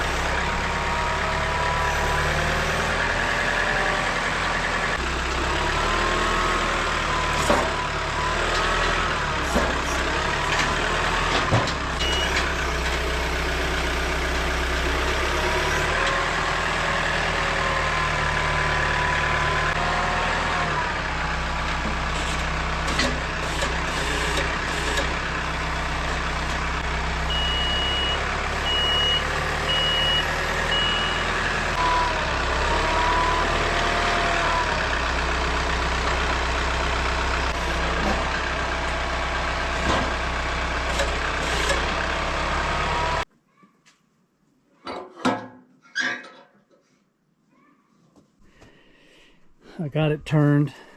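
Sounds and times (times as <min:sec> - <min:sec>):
heavy machine engine revving: 0:00.0 - 0:43.3
reversing alarm beeping: 0:12.0 - 0:12.5, 0:27.2 - 0:32.2.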